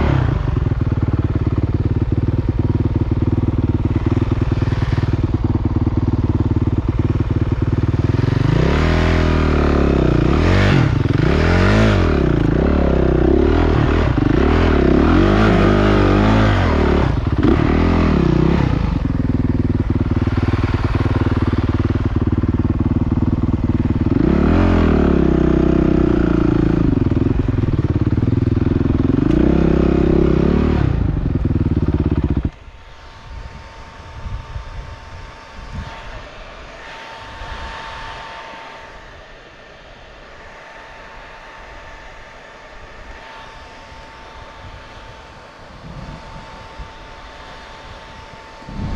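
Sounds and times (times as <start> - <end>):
dirt bike engines revving: 0.0 - 39.1.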